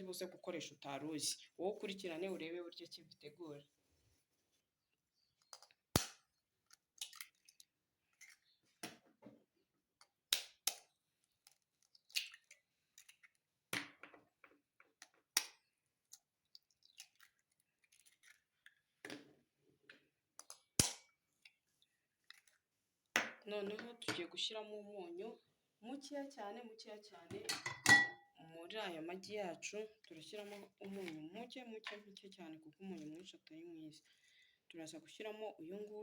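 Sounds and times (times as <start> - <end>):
eggshell crackling: 5.3 - 8.6, 10.0 - 13.7, 14.9 - 19.0, 20.4 - 22.7.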